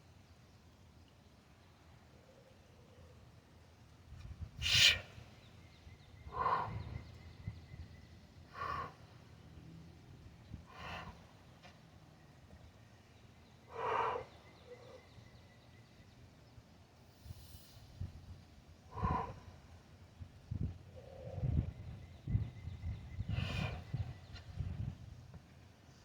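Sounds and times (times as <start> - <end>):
man breathing out hard: 10.6 - 11.2.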